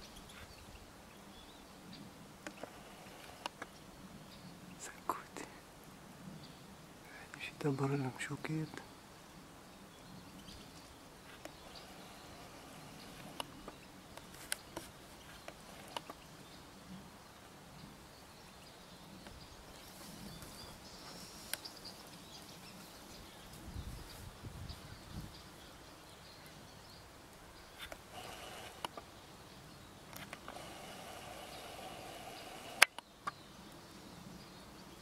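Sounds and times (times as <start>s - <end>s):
faint high bird calls: 10.0s - 17.0s, 24.8s - 33.7s.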